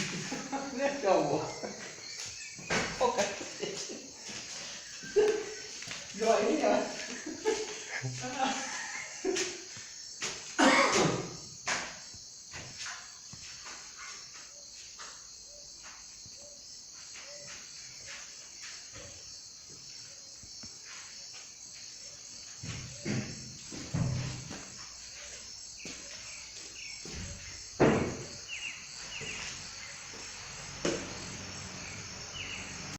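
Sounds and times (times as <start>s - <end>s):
cricket chorus trilling: 0.0s - 32.9s
louder knocks: 27.8s - 28.4s.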